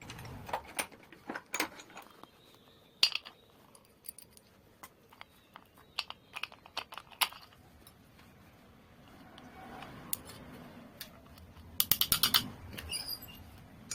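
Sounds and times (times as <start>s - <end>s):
metallic clicks and clinks: 3.0s - 8.0s, 11.0s - 13.9s.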